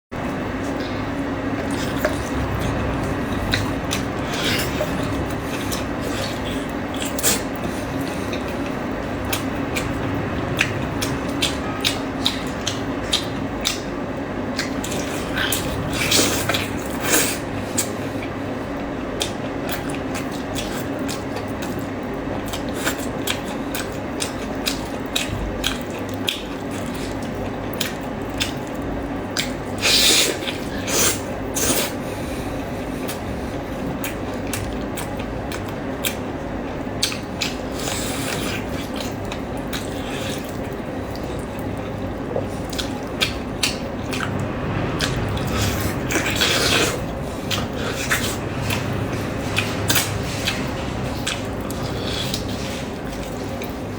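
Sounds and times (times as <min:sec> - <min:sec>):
low hum: 0:00.2 - 0:17.1, 0:40.4 - 0:53.9
wet chewing and lip-smacking: 0:00.6 - 0:32.0, 0:32.6 - 0:53.8.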